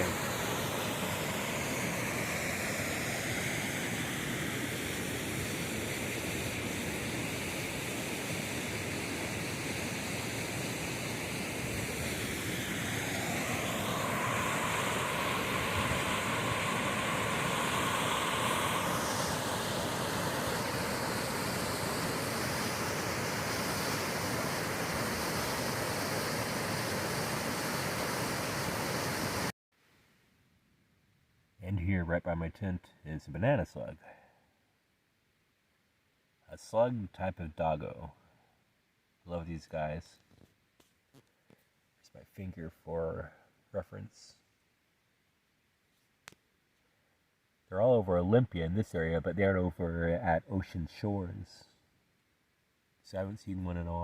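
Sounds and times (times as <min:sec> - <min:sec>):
waterfall rushing: 0:00.0 - 0:03.4, 0:10.4 - 0:29.5.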